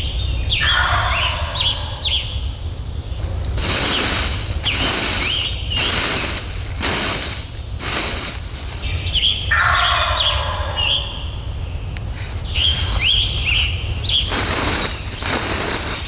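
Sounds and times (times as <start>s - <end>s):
small birds chirping: 11.7s - 15.3s.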